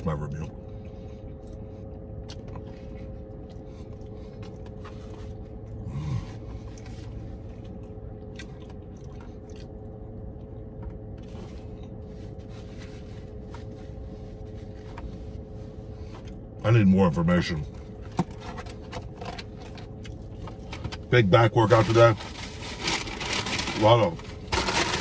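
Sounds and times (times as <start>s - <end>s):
low hum from throat: 0.0s - 25.0s
man chewing: 0.6s - 12.4s, 19.0s - 20.7s
paper wrapper rustling: 21.7s - 25.0s.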